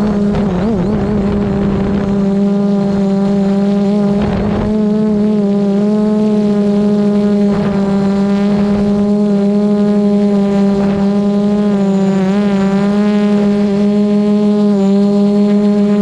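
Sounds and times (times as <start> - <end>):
wind buffeting microphone: 0.0 - 5.8
drone propellers whining: 0.0 - 16.0.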